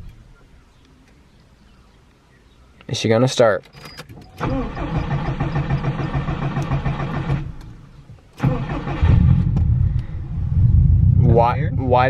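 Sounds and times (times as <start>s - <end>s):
starter motor cranking: 4.1s - 7.8s, 8.4s - 9.6s.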